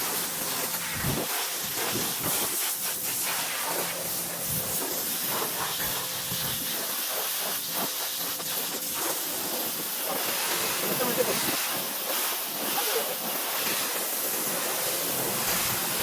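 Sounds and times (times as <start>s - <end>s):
pressure washer spraying siding: 0.0s - 16.0s.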